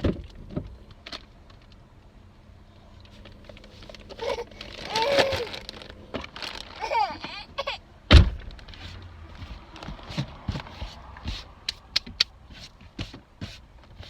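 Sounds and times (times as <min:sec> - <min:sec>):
heavy thump: 0:08.1 - 0:08.6.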